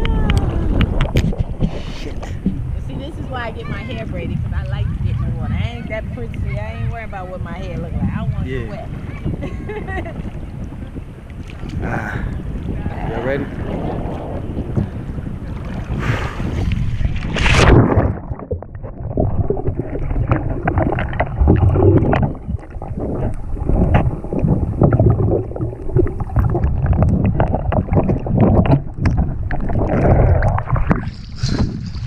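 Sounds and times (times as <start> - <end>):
small underwater clicks: 0.0 - 2.6, 17.4 - 31.5
sea water splashing: 0.0 - 32.0
underwater sloshing and gurgling: 0.0 - 32.0.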